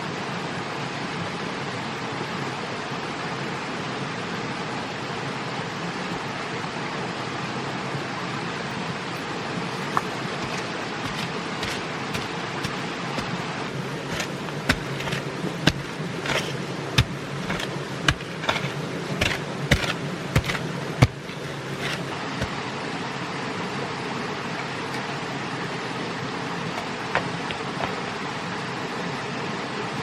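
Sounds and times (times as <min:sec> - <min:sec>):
sharp knocks and taps: 0:09.8 - 0:13.4, 0:14.0 - 0:22.5.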